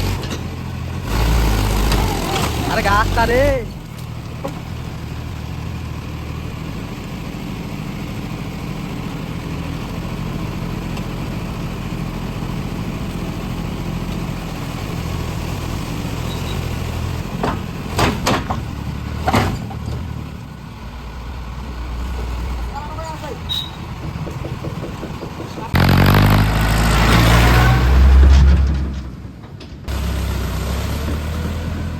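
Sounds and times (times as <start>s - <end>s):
diesel engine idling: 20.0s - 30.2s
sharp knocks: 24.0s - 27.2s.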